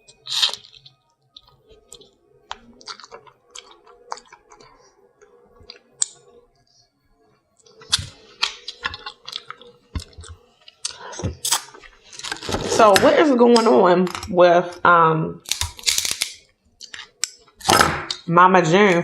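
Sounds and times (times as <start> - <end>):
chewing: 0.0 - 12.9, 16.7 - 17.6
seafood shell cracking: 0.1 - 4.8, 7.6 - 12.5, 15.4 - 18.2.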